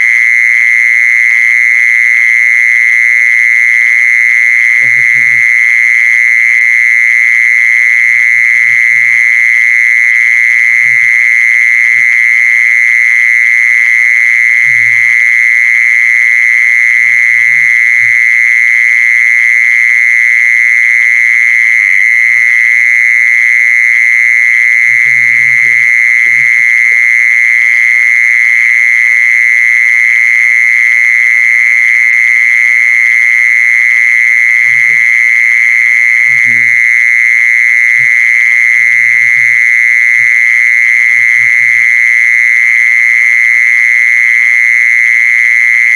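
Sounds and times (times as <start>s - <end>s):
insect buzzing song: 34.4s - 42.3s.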